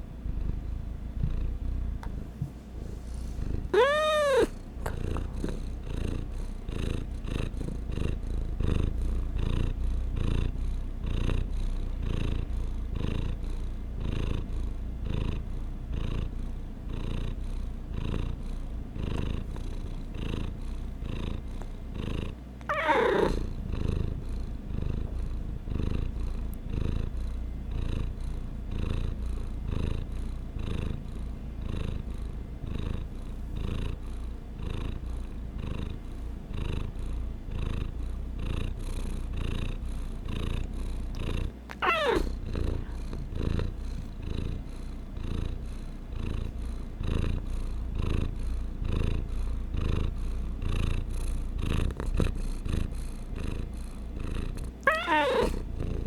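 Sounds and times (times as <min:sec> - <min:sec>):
cat purring: 0:00.0 - 0:56.0
cat meowing: 0:03.7 - 0:04.6, 0:22.7 - 0:23.4, 0:41.7 - 0:42.3, 0:54.8 - 0:55.6.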